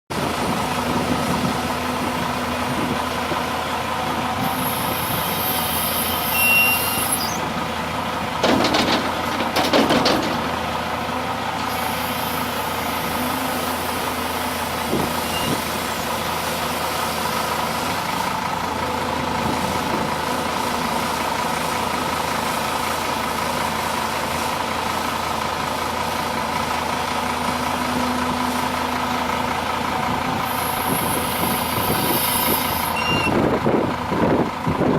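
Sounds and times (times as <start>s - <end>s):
excavator engine and hydraulics: 0.1s - 34.9s
loud bursts of clatter: 8.4s - 10.6s.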